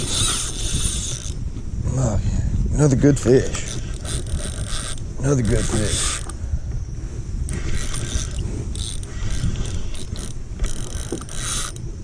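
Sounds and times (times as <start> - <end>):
fishing reel clicking and whirring: 0.0 - 1.4, 3.2 - 6.4, 7.5 - 11.9.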